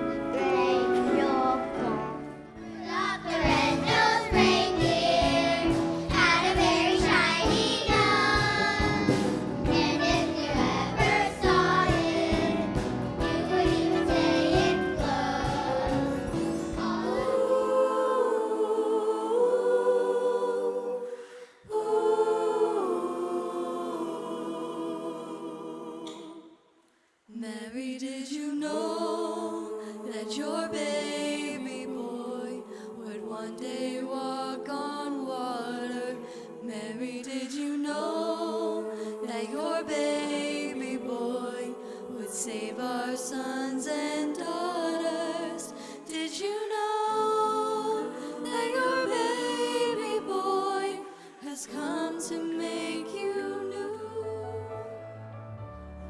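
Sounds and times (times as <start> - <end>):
choir singing christmas music: 0.0 - 56.0
instrumental accompaniment with beat: 3.4 - 17.1.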